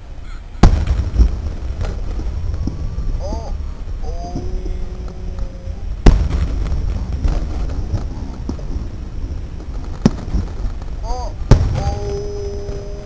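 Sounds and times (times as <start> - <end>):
low rumble: 0.0 - 13.0
small firework pops: 0.6 - 3.4, 4.4 - 12.8
fireworks bangs: 0.6 - 13.0.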